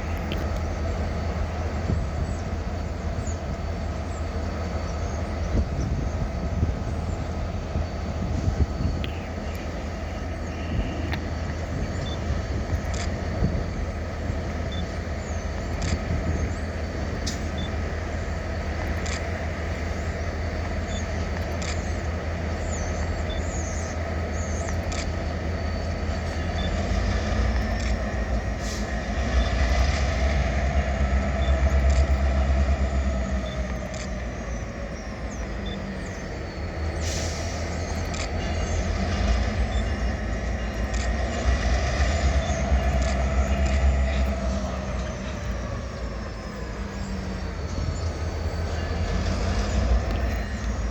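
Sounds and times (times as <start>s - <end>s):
diesel locomotive rumble: 0.0s - 50.9s
sharp clicks: 9.0s - 17.8s, 18.4s - 19.9s, 20.6s - 28.4s, 31.4s - 32.5s, 33.4s - 34.3s, 37.0s - 44.6s
wheels squealing on rail: 20.0s - 50.9s.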